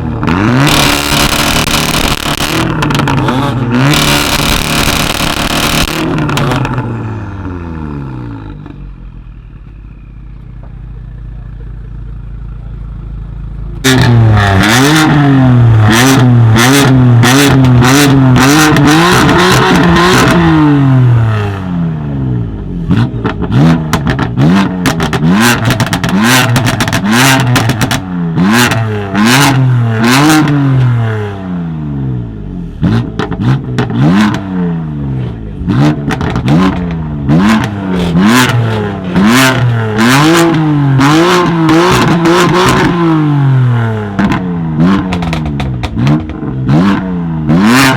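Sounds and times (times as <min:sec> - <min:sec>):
car engine revving: 0:00.0 - 0:47.9
exhaust cracks and pops: 0:36.0 - 0:37.0, 0:45.0 - 0:46.5.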